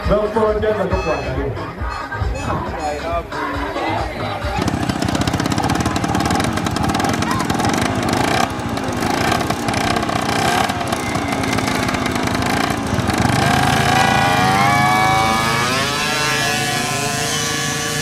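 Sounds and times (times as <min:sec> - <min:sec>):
quad bike engine running: 0:04.0 - 0:18.0.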